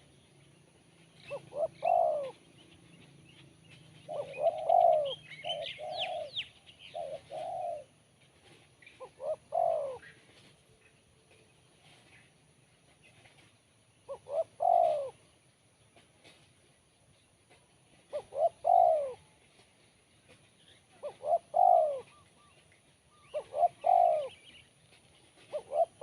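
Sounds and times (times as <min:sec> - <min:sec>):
small birds chirping: 0:00.0 - 0:07.9, 0:08.5 - 0:16.4, 0:17.0 - 0:26.0
dove cooing: 0:01.2 - 0:02.6, 0:04.0 - 0:10.5, 0:14.1 - 0:15.3, 0:18.0 - 0:19.4, 0:20.9 - 0:24.6, 0:25.3 - 0:26.0.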